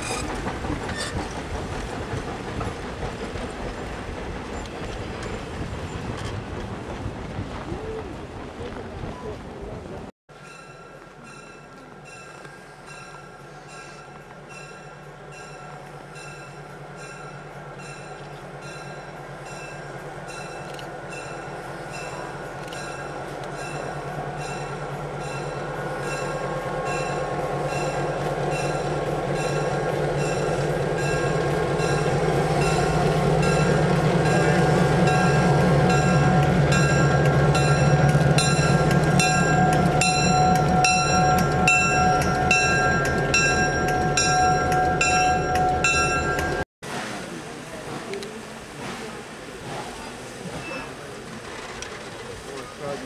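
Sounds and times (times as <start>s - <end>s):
high wheel squeal: 0.0s - 1.3s
locomotive bell ringing: 10.4s - 46.6s.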